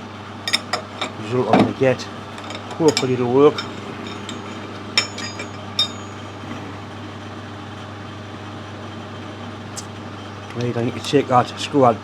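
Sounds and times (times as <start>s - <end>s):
low workshop hum: 0.0s - 12.0s
metallic clinks of small parts: 0.5s - 1.2s, 2.4s - 6.3s.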